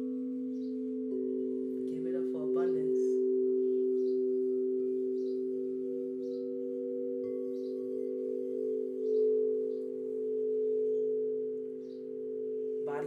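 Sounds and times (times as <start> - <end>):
singing bowl hum: 0.0 - 13.0
bird chirps: 0.2 - 1.2, 3.5 - 12.4.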